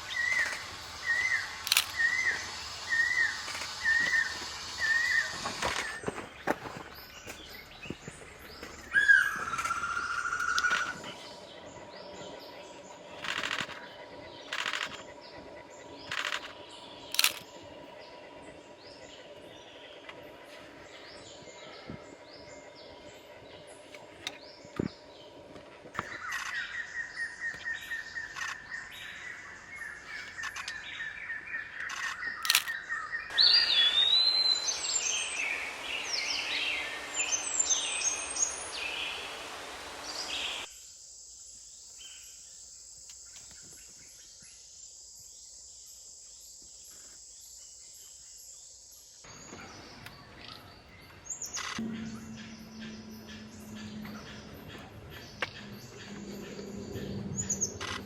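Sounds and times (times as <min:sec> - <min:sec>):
hiss: 0:00.0 - 0:06.2, 0:33.3 - 0:40.7
steady high whine: 0:00.0 - 0:26.5, 0:33.3 - 0:40.7, 0:51.5 - 0:58.0
birds calling and chirping: 0:00.0 - 0:40.7, 0:46.5 - 0:58.0.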